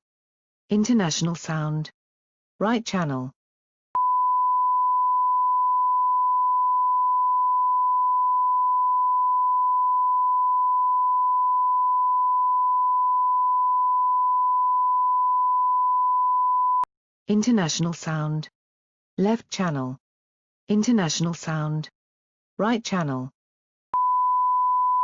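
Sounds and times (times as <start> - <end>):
pure test tone: 4.0 - 16.9, 24.0 - 25.0.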